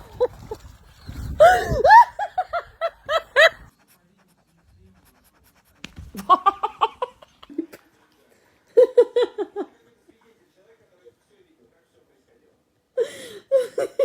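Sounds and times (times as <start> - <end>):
person laughing: 1.4 - 3.7, 6.2 - 7.8, 13.1 - 14.0.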